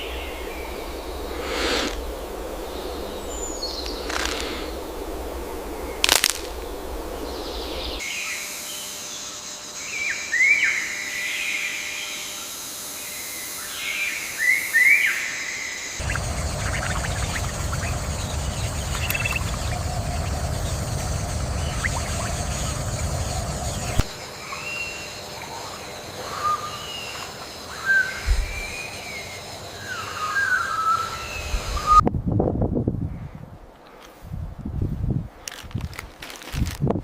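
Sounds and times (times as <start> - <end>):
low rumbling noise: 0.0 - 8.0, 16.0 - 24.2
birds chirping: 16.0 - 25.6.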